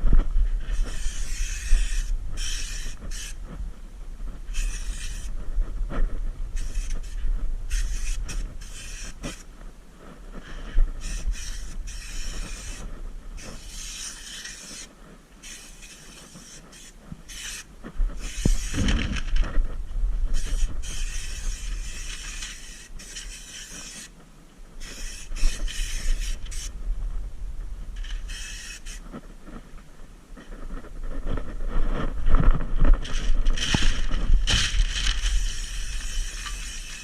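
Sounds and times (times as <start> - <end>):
steady low hum: 0.0 - 37.0
spray gun hissing in bursts: 0.9 - 3.4, 6.6 - 9.4, 11.0 - 12.8, 35.3 - 37.0.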